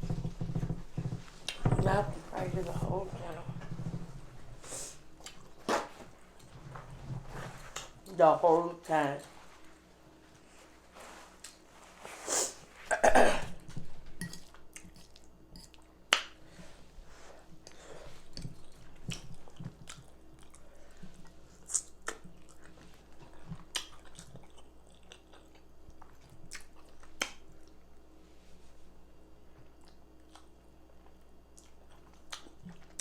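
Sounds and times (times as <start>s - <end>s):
chewing: 14.3s - 16.0s, 17.6s - 27.8s, 29.6s - 33.0s.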